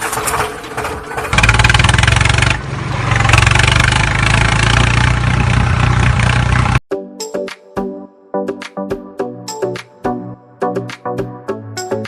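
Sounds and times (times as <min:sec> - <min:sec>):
tractor engine chugging: 0:00.0 - 0:06.8.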